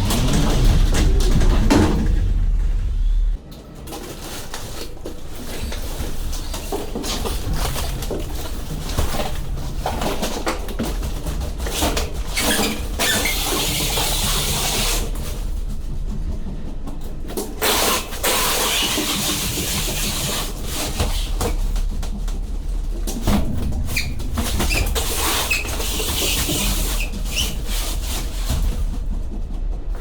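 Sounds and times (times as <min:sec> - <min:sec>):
boxes knocking and scraping: 0:00.0 - 0:03.4, 0:04.0 - 0:30.0
steady low rumble: 0:00.0 - 0:03.4, 0:21.6 - 0:27.3.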